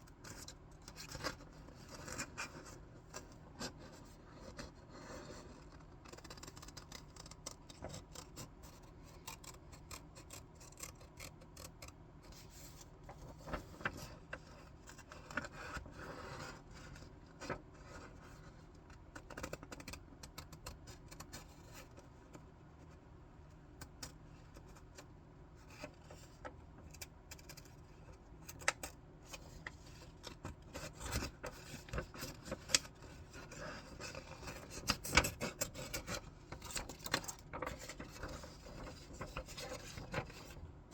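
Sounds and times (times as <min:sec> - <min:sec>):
scissors cutting paper: 0:06.1 - 0:12.4
paper rustling: 0:29.4 - 0:40.6.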